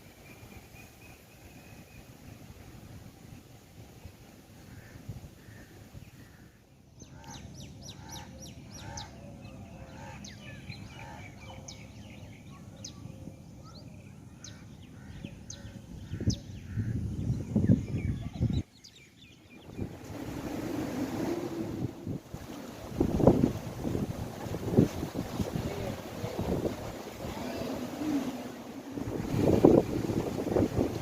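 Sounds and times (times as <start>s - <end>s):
birds chirping and calling: 4.8s - 20.1s
wind buffeting microphone: 14.4s - 31.0s.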